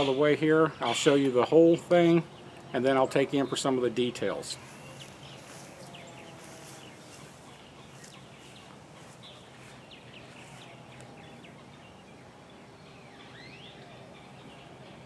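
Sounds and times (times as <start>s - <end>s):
faint bird chirps: 4.6s - 15.0s.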